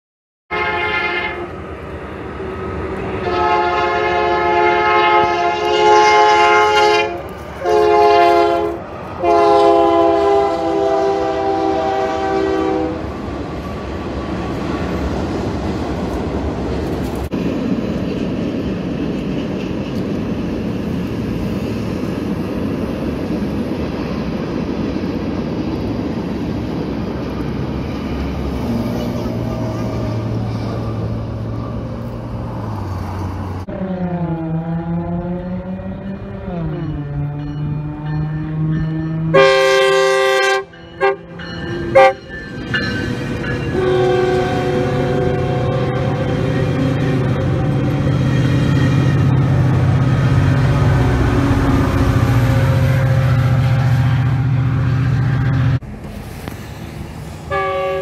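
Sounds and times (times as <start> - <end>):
train air horn blasts: 0.5 - 1.6, 3.2 - 13.1, 39.3 - 41.3, 41.9 - 42.2, 43.7 - 47.9, 50.2 - 55.8, 57.5 - 58.0
freight cars rumbling and rattling: 12.9 - 39.4, 55.4 - 57.6.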